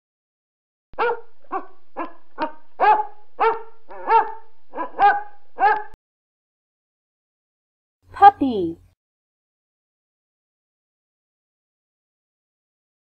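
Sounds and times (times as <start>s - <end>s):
dog barking: 1.0s - 6.0s.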